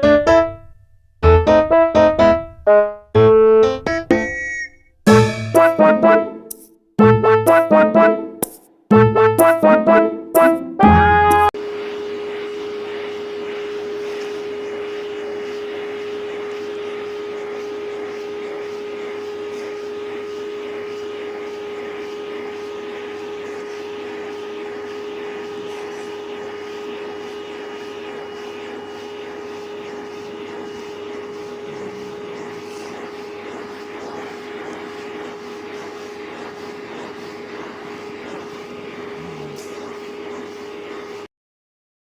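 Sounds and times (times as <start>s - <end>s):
steady machine drone: 5.1s - 6.4s, 11.6s - 41.3s.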